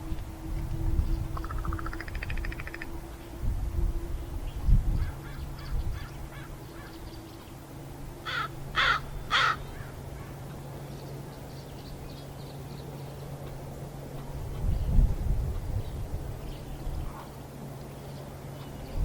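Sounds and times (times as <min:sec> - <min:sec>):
crow cawing: 0:08.2 - 0:09.9.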